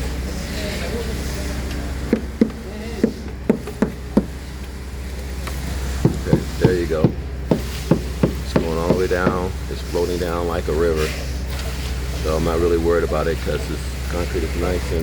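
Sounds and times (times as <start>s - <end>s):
low engine drone: 0.0s - 15.0s
sharp knocks: 2.1s - 4.4s, 6.0s - 9.5s
person speaking: 6.1s - 7.2s, 8.3s - 11.2s.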